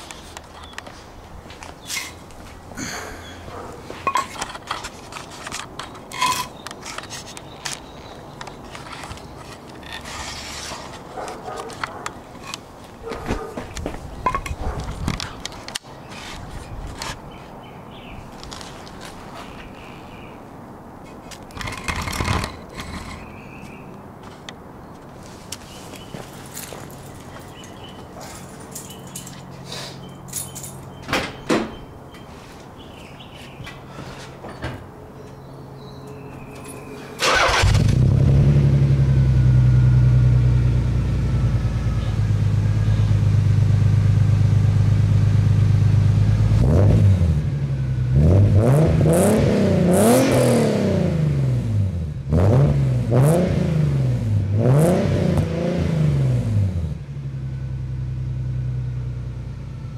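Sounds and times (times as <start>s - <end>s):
car engine idling and revving: 37.2s - 59.9s.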